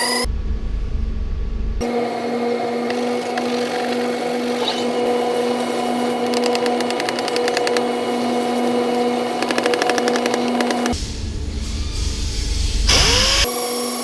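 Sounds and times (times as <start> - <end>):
power tool motor running: 1.8 - 11.0, 12.9 - 14.0
rapid ticking: 5.6 - 11.0.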